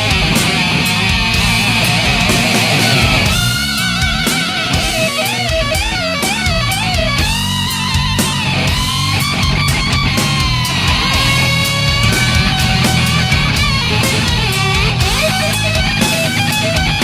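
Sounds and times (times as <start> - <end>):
drum hits: 0.0 - 17.0
lead electric guitar bends: 0.0 - 17.0
rhythm guitar: 0.0 - 17.0.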